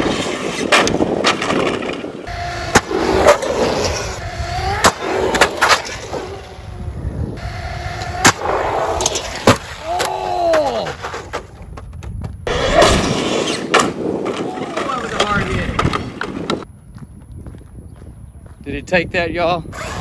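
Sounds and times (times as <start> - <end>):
tyres on asphalt: 0.0 - 20.0
electric motor whining: 2.3 - 9.4.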